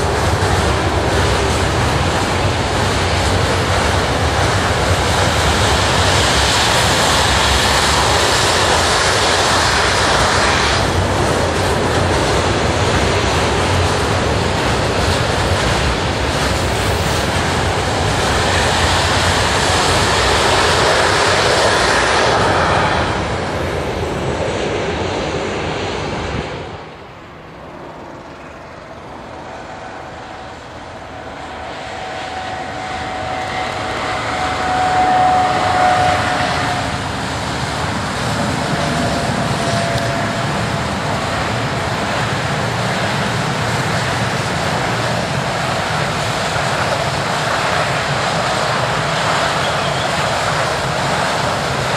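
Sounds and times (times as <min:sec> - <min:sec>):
train high steady whine: 0:00.0 - 0:51.9
train passing rumble: 0:00.0 - 0:51.9.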